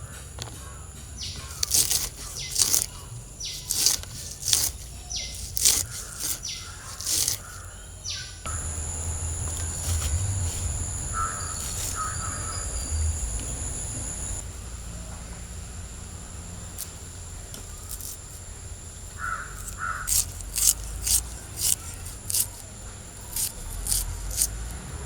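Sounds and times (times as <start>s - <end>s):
downward sweeping bird calls: 0.0s - 14.4s
high-pitched insect drone: 1.0s - 24.8s
low rumble: 8.4s - 19.6s.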